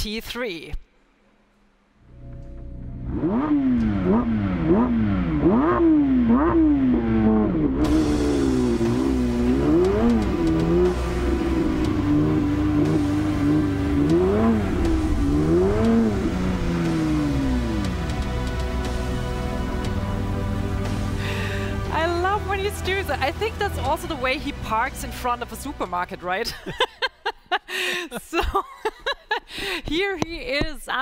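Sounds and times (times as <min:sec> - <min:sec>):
car engine revving: 0:02.0 - 0:26.6.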